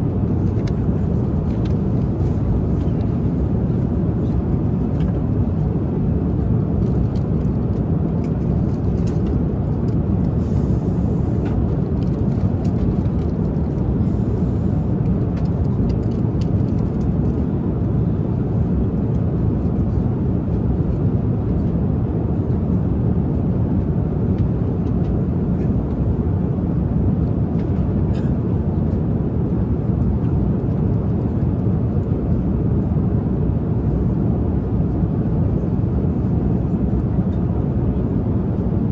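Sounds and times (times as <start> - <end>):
airliner cabin drone: 0.0 - 38.9.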